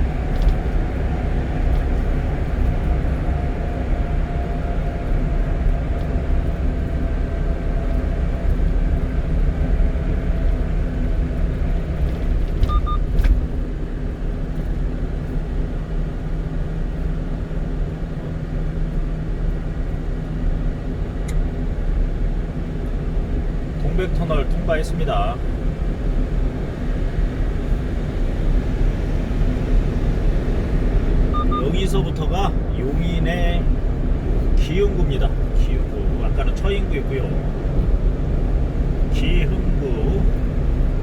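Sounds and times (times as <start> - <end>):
truck driving through tunnel: 0.0 - 41.0
double electronic beep: 12.7 - 13.0, 31.3 - 31.7.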